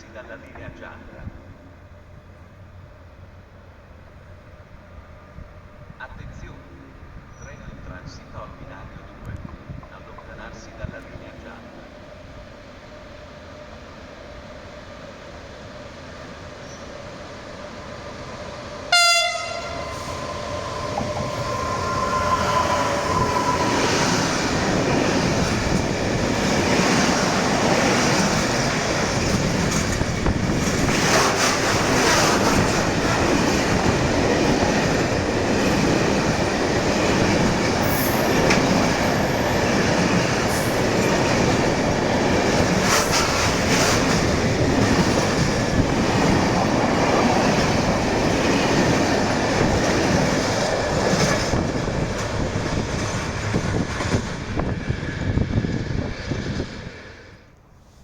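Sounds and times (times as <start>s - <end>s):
freight train rumbling past: 0.0s - 57.9s
train horn blast: 18.9s - 20.3s.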